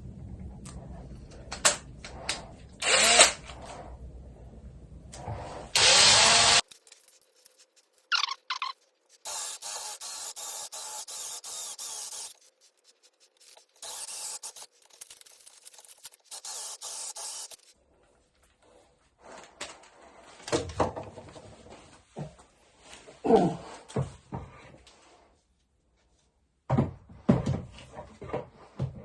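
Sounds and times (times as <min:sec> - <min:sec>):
rapid rubbing strokes: 0:06.6 - 0:17.8.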